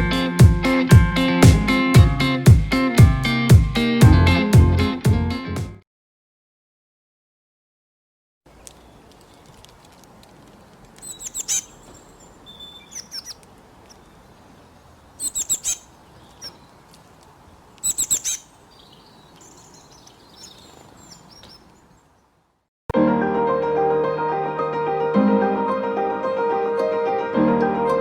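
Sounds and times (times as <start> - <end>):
faint bird calls: 8.5 - 22.5
background hiss: 8.5 - 22.6
birds chirping: 8.5 - 22.7.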